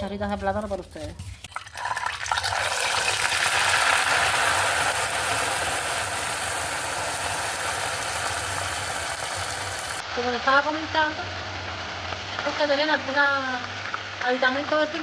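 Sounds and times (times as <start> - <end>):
plantain sizzling in hot oil: 1.4 - 10.0.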